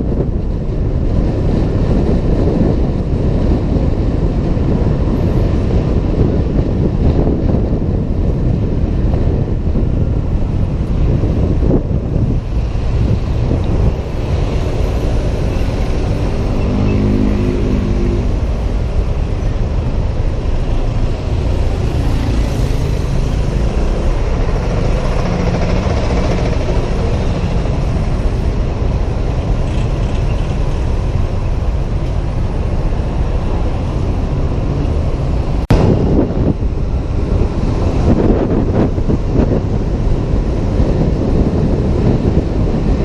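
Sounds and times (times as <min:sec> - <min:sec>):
traffic noise: 0:00.0 - 0:43.0
wind rushing over microphone: 0:00.0 - 0:43.0
scooter engine: 0:21.4 - 0:30.3.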